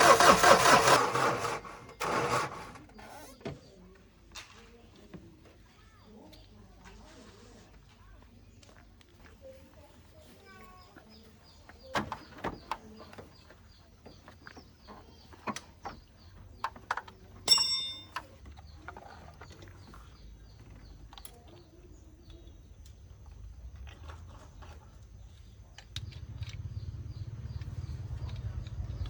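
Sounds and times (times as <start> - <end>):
engine running: 0.0 - 1.8, 23.7 - 29.0
tools clicking and knocking: 16.6 - 19.7
ringing metal clang: 17.5 - 18.3.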